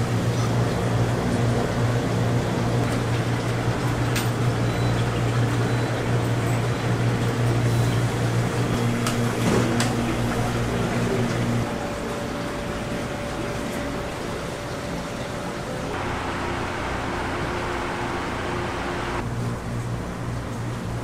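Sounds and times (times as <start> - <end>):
electric motor hum: 16.0 - 19.2.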